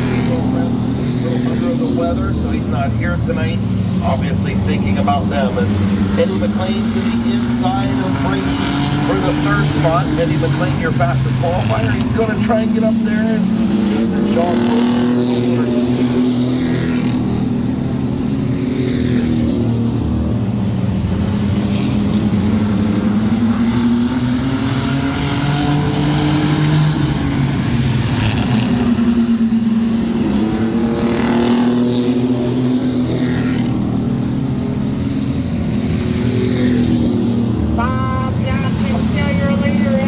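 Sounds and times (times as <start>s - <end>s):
racing truck engines passing: 0.0s - 40.0s.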